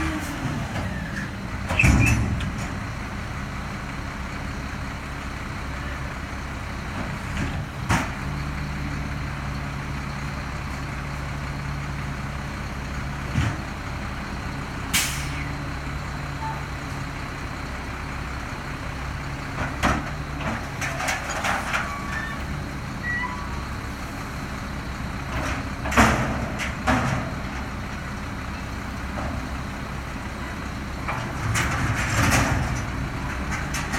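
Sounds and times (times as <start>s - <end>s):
garbage truck engine running: 0.0s - 33.9s.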